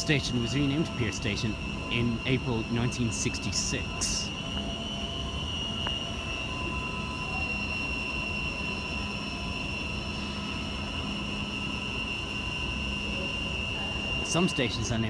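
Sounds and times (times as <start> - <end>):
high-pitched electrical whine: 0.0 - 15.0.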